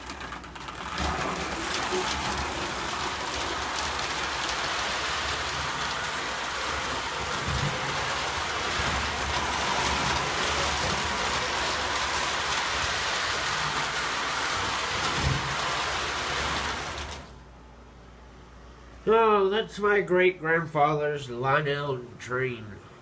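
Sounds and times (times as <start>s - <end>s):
toy train rattling on rails: 0.0s - 17.3s.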